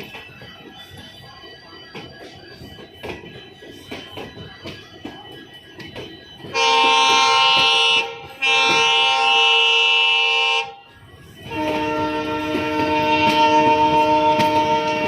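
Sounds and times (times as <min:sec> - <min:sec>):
locomotive horn blasts: 0:06.5 - 0:10.8, 0:11.4 - 0:15.0.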